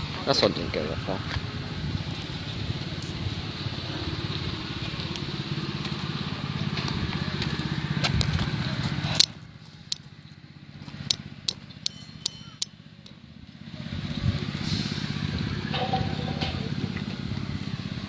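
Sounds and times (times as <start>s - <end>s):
wind noise on microphone: 0.6s - 3.5s, 13.9s - 18.0s
sharp clicks: 11.0s - 13.2s.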